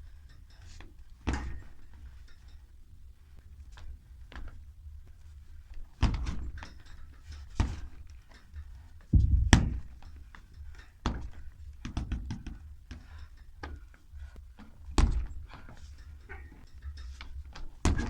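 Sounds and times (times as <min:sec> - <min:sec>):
heavy thuds and slaps: 0:06.0 - 0:06.6, 0:09.1 - 0:10.0
feet landing after jumps: 0:09.2 - 0:10.0.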